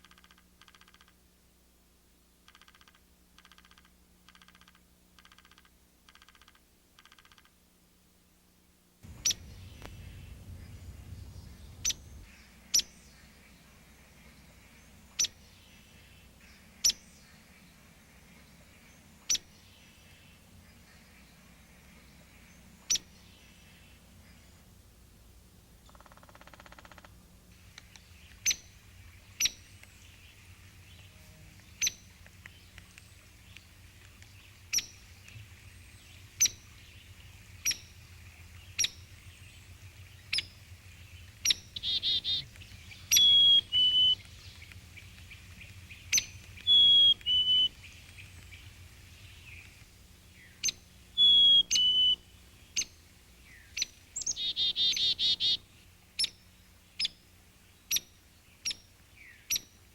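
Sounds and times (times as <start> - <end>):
harsh buzzy bird calls: 9.0 - 24.7, 25.8 - 59.9
bird chip notes: 41.2 - 49.8.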